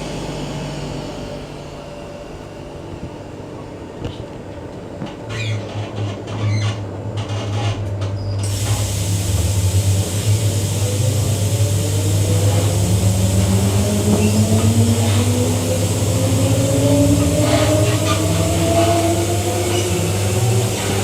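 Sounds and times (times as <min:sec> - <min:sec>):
electric train traction hum: 0:00.0 - 0:05.3, 0:07.8 - 0:21.0
train clicks and clunks: 0:04.0 - 0:10.3, 0:12.5 - 0:16.0
rising whine: 0:09.3 - 0:21.0.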